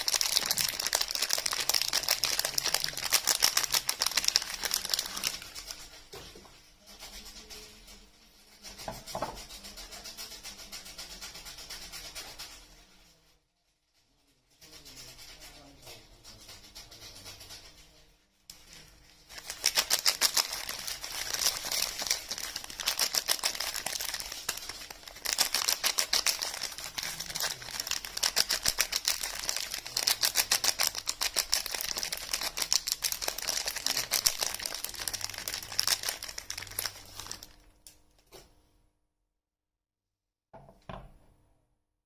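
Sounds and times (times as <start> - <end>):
soap wrapping crackling: 0.0 - 5.8, 19.3 - 37.7.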